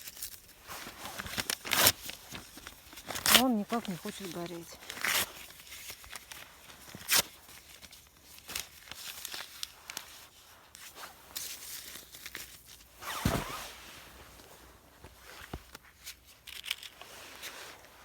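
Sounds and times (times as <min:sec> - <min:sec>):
twigs and paper rustling: 0:00.0 - 0:13.6.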